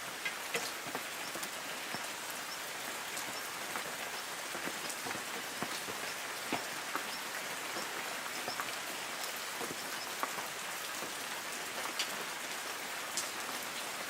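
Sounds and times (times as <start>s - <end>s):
drops ticking on leaves: 0.0s - 13.4s
rain falling on trees: 0.0s - 14.0s.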